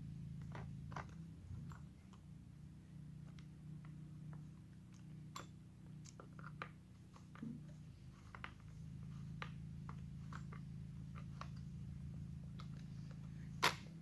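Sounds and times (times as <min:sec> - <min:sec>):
steady low hum: 0:00.0 - 0:14.0
small parts clicking and tapping: 0:03.2 - 0:11.7.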